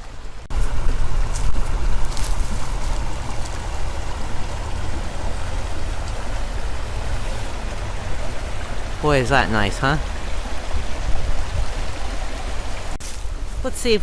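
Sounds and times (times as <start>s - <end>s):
stream water rushing: 0.0s - 14.0s
heavy low rumble: 0.1s - 9.0s.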